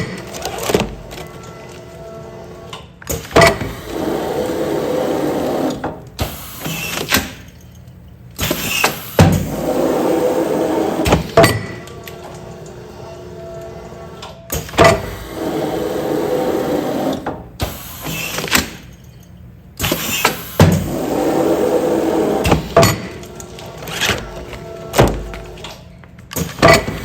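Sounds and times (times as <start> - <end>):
sealing machine running: 3.4 - 7.5, 8.4 - 13.0, 14.7 - 18.8, 19.8 - 27.0.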